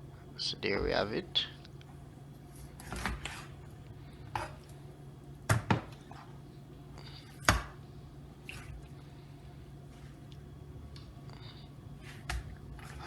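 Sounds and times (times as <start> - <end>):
knife chopping on cutting board: 5.5 - 5.9.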